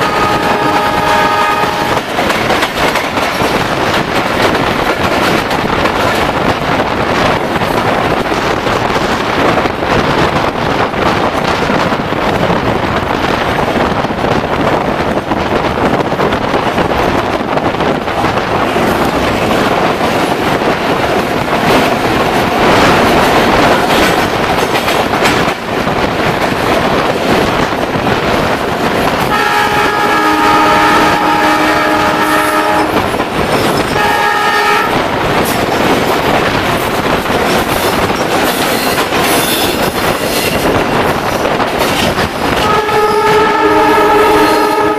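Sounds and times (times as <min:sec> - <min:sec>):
multi-tone train horn: 0:00.0 - 0:02.1, 0:29.1 - 0:35.2, 0:42.6 - 0:44.9
train wheel clatter: 0:00.0 - 0:44.9.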